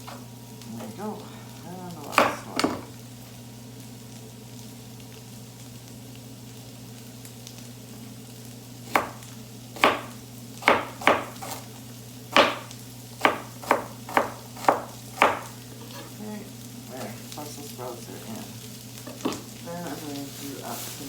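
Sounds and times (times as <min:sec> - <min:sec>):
faint sizzling in frying pan: 0:00.0 - 0:21.0
knife chopping on board: 0:02.1 - 0:02.9, 0:08.9 - 0:11.7, 0:12.3 - 0:15.6.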